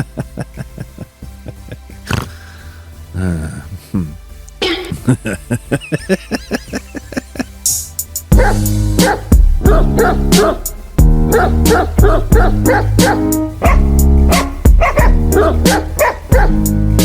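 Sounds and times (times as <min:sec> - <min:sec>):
loud background music: 0:00.0 - 0:17.0
dog barking: 0:08.4 - 0:10.7, 0:11.3 - 0:16.6.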